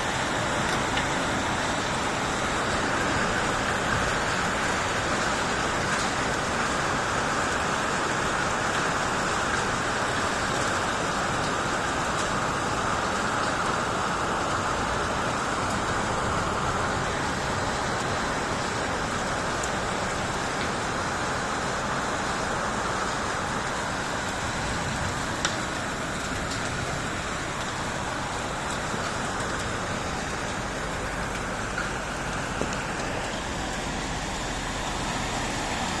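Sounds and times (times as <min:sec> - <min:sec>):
steady rain falling: 0:00.0 - 0:36.0
raindrop taps: 0:23.6 - 0:35.0.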